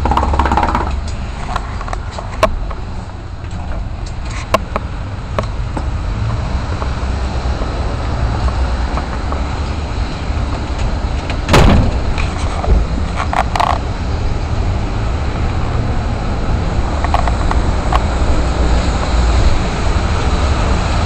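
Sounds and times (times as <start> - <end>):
loud thump: 11.4 - 13.0.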